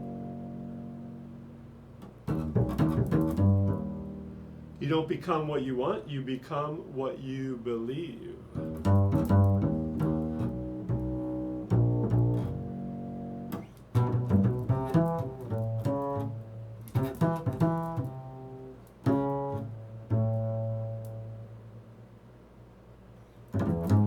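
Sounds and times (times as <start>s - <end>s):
low plucked string instrument: 0.0s - 4.8s, 8.5s - 21.8s, 23.5s - 24.0s.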